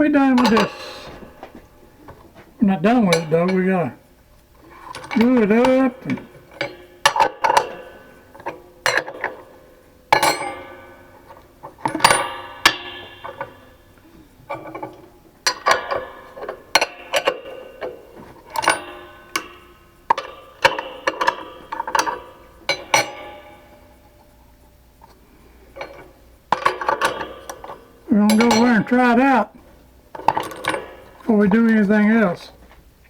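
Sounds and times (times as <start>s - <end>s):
hard objects clinking on workbench: 0.3s - 3.9s, 10.1s - 24.1s.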